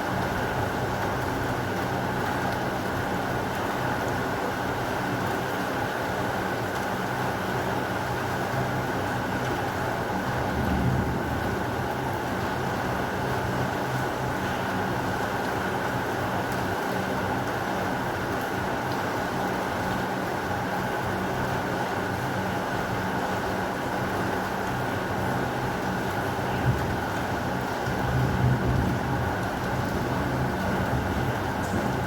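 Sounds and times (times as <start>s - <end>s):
heavy rain hissing: 26.2s - 32.0s.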